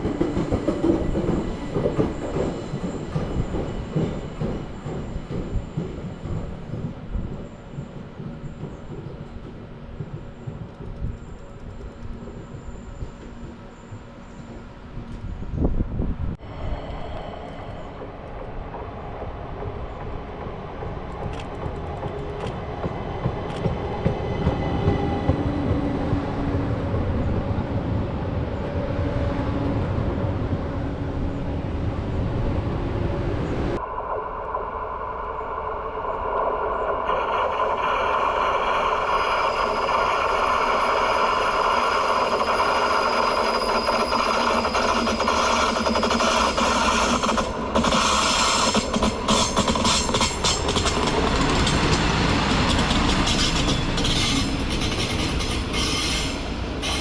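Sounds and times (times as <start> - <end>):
train rumbling along tracks: 0.0 - 57.0
rail noise hiss: 33.8 - 57.0.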